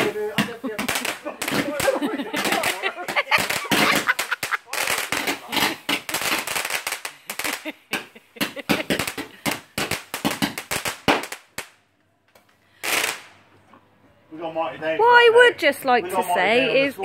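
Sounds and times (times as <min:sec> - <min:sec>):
fireworks cracking and banging: 0:00.0 - 0:13.5.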